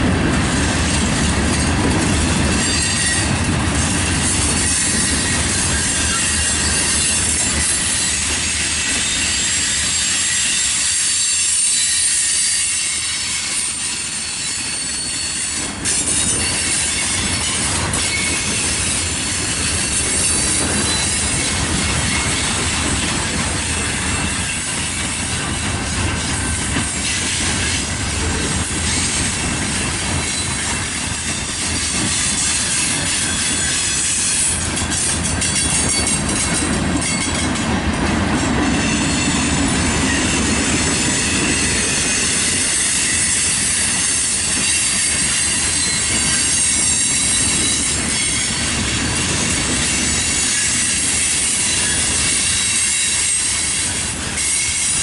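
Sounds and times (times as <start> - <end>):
steel wheels rumbling on rail: 0.0 - 55.0
high-pitched wheel squeal: 2.6 - 3.3, 4.6 - 18.8, 19.5 - 22.6, 38.8 - 48.8, 49.8 - 55.0.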